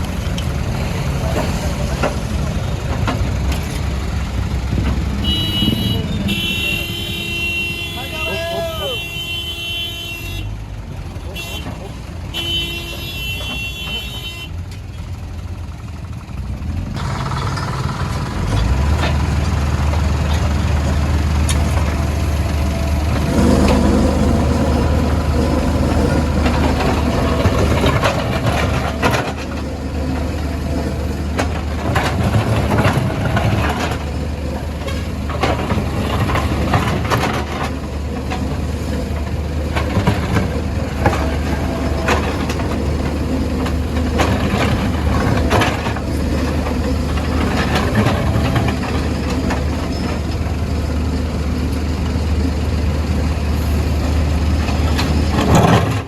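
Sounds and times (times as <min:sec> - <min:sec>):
diesel engine running: 0:00.0 - 0:56.0
knocks and scrapes: 0:17.4 - 0:50.5.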